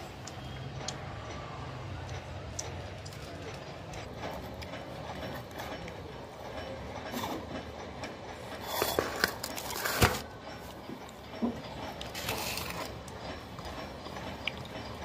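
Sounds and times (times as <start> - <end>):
man chewing food: 10.7 - 15.0.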